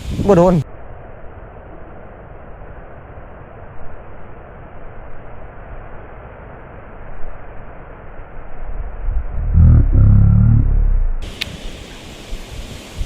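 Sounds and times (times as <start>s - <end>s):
wind buffeting microphone: 0.0s - 0.6s, 8.6s - 11.7s.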